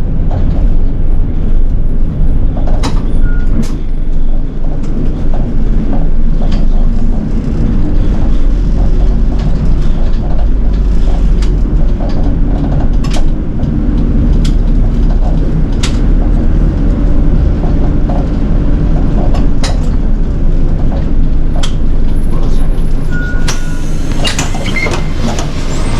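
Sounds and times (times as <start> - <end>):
bus diesel engine rumble: 0.0 - 25.9.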